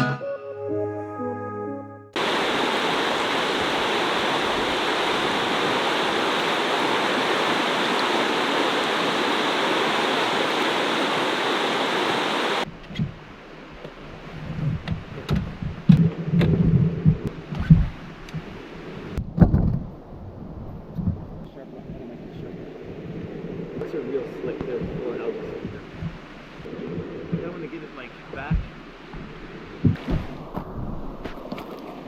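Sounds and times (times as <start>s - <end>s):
guitar music: 0.0s - 2.2s
water rushing: 2.2s - 12.7s, 21.6s - 32.0s
low hum: 18.6s - 31.4s.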